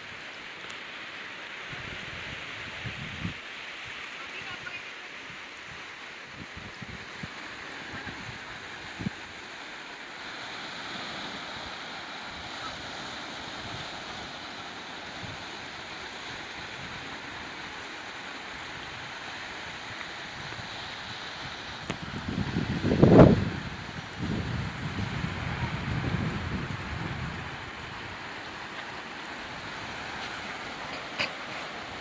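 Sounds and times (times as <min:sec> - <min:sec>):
surf on a rocky beach: 0:00.0 - 0:32.0
wind buffeting microphone: 0:21.8 - 0:28.3.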